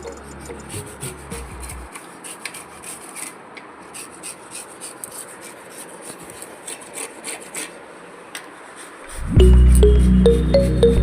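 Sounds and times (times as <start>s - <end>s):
scraping and rubbing strokes: 0.0s - 7.8s, 8.6s - 10.2s
loud music: 9.3s - 11.0s.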